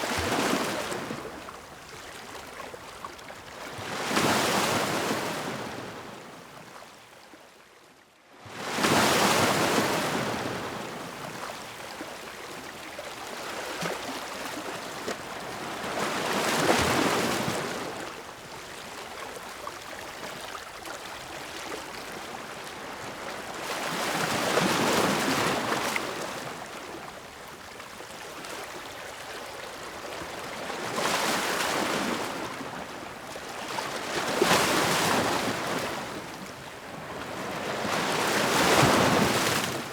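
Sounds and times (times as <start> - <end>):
ocean waves breaking: 37.1 - 39.9.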